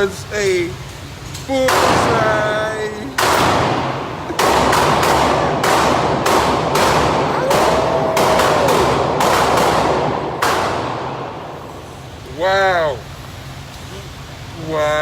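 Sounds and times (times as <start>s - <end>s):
gunshots with echoing decay: 3.2s - 11.6s.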